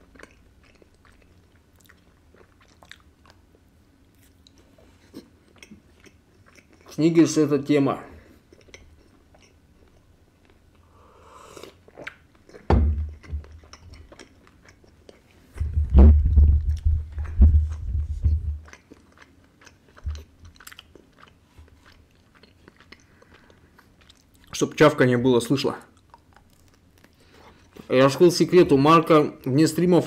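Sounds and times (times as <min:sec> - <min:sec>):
chewing with wet mouth clicks: 0:00.0 - 0:07.0, 0:08.4 - 0:10.8, 0:11.6 - 0:15.4, 0:18.6 - 0:24.6, 0:25.8 - 0:27.8.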